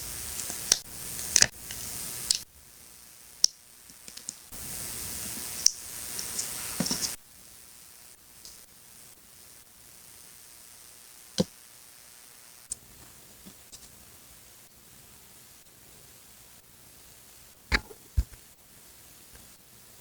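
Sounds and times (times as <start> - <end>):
paper rustling and scraping: 6.1 - 7.2.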